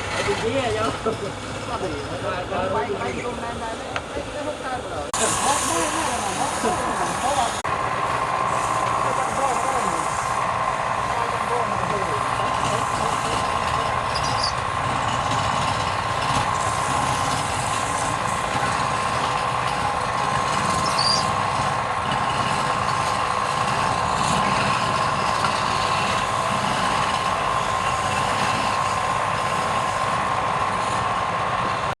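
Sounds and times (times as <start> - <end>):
wood lathe motor whine: 0.0 - 31.9
faint high squeaks: 20.8 - 21.3.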